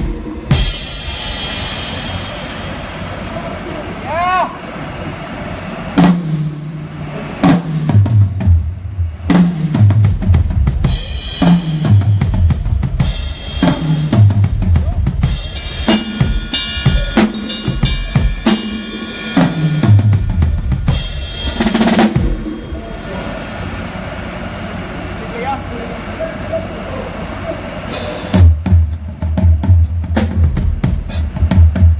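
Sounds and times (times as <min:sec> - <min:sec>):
cymbal crashes: 0:00.0 - 0:03.8, 0:06.0 - 0:25.2
tom drum fills: 0:06.0 - 0:24.0
bass drum: 0:07.8 - 0:18.6, 0:19.4 - 0:22.9, 0:28.4 - 0:31.9.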